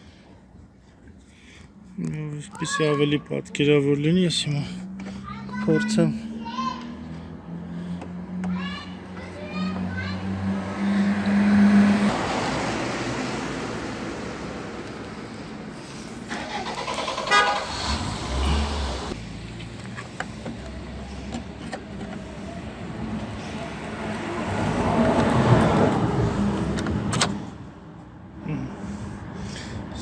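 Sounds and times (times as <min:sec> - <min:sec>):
passing car noise: 0:03.6 - 0:30.0
car horn: 0:17.1 - 0:18.1.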